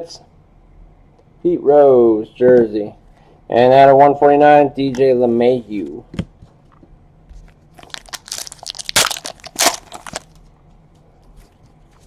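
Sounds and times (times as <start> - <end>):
wrapper crinkling as torn open: 7.8 - 10.5.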